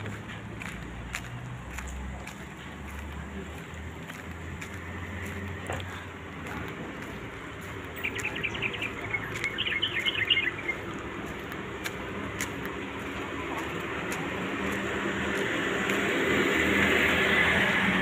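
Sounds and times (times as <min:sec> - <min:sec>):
outdoor background rumble: 0:00.0 - 0:18.0
bird chirping: 0:07.8 - 0:11.4.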